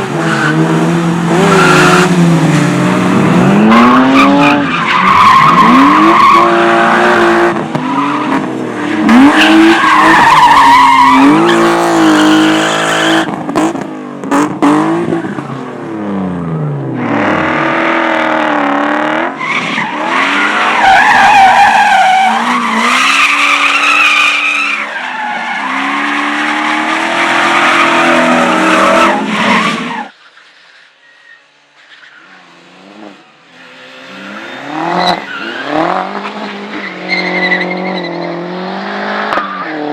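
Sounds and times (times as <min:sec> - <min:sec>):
car engine revving: 0:00.0 - 0:15.2
tyres squealing on tarmac: 0:03.6 - 0:07.2, 0:07.8 - 0:11.8, 0:19.4 - 0:32.6, 0:34.3 - 0:38.4.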